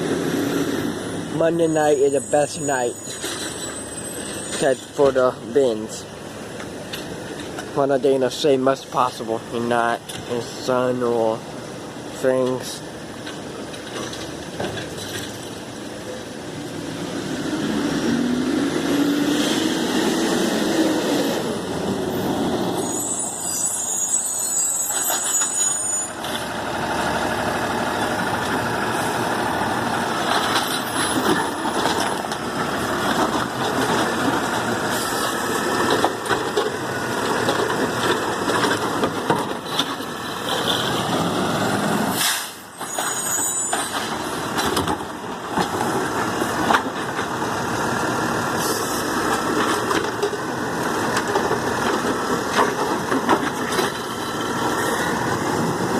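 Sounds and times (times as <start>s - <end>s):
brake squeal: 1.5s - 5.1s, 22.1s - 26.6s, 30.3s - 32.3s, 40.2s - 44.6s, 48.6s - 49.2s
garbage truck engine revving: 16.6s - 22.8s.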